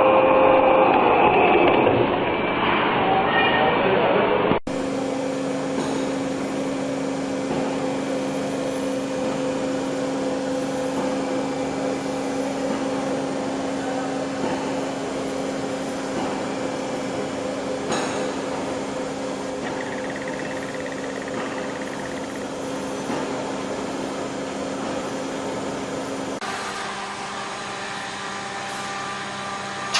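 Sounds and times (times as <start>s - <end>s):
machine humming and whirring: 4.7s - 27.9s.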